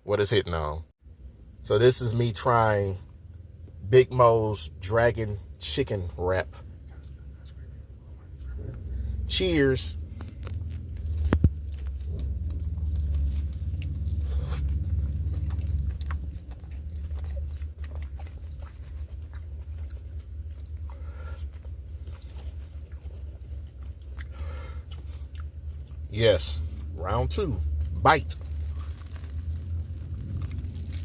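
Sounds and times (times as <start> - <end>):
steady low hum: 0.0 - 31.0
person chewing food: 10.0 - 27.0, 27.7 - 31.0.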